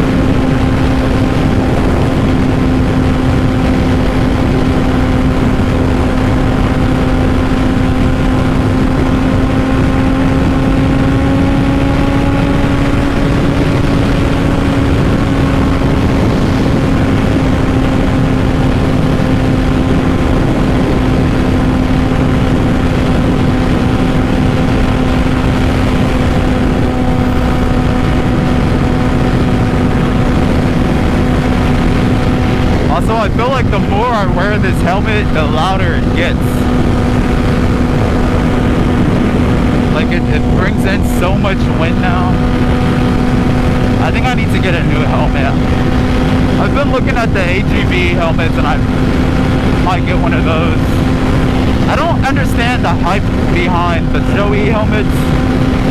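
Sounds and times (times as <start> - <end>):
motorcycle engine high drone: 0.0 - 55.9
wind rushing over microphone: 0.0 - 55.9.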